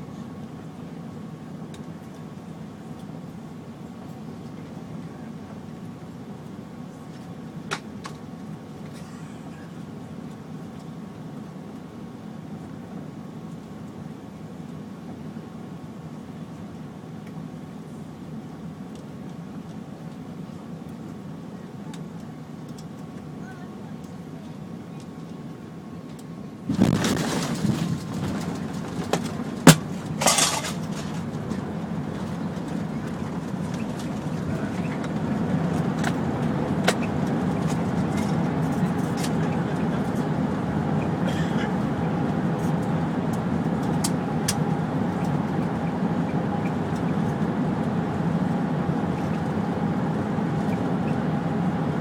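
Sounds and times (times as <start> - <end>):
airliner cabin rumble: 0.0 - 52.0
cabin hum: 26.0 - 52.0
jet rumbling on runway: 26.1 - 52.0.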